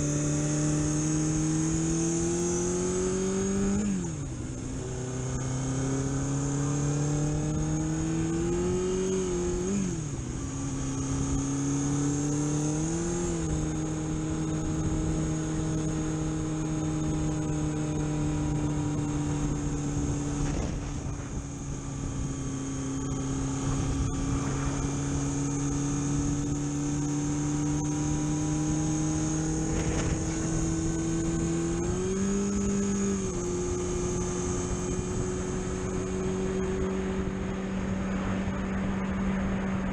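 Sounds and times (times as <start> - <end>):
high-pitched whine: 0.0 - 39.9
car engine pulling under load: 19.4 - 36.0.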